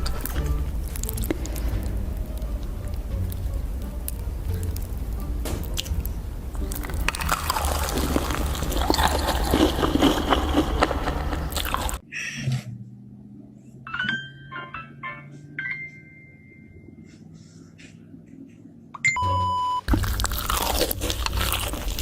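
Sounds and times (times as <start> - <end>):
crunchy food chewing: 0.0 - 12.0, 19.9 - 22.0.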